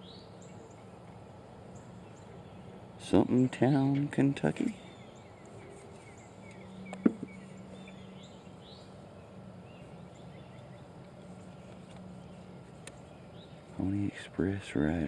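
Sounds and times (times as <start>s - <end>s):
low steady hum: 0.0s - 15.0s
sharp knock: 7.0s - 7.4s.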